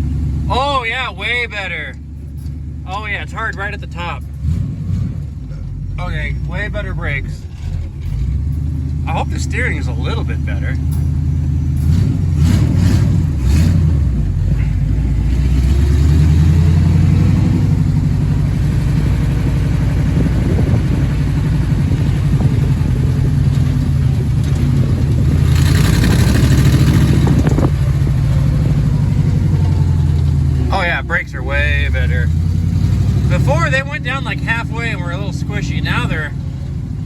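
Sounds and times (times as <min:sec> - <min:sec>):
car engine running: 0:00.0 - 0:37.0.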